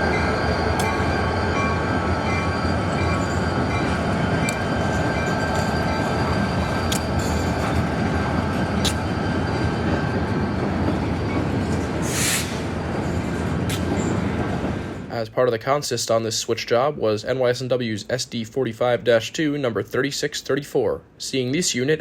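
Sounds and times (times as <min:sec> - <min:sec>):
diesel locomotive running: 0:00.0 - 0:15.1
freight cars rolling: 0:00.0 - 0:15.1
hiss burst: 0:12.0 - 0:12.8.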